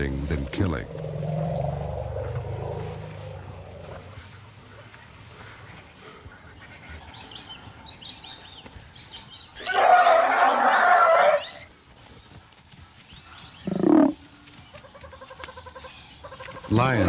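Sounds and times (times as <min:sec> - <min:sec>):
elephant calf screaming: 0:09.6 - 0:11.7
faint bird chirps: 0:13.1 - 0:16.8
elephant calf low call: 0:13.7 - 0:14.2.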